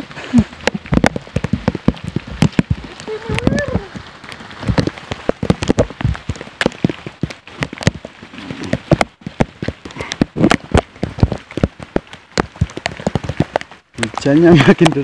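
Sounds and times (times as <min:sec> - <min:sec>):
heavy rain hiss: 0:00.0 - 0:00.7, 0:01.4 - 0:09.0
raindrops striking close: 0:00.0 - 0:15.0.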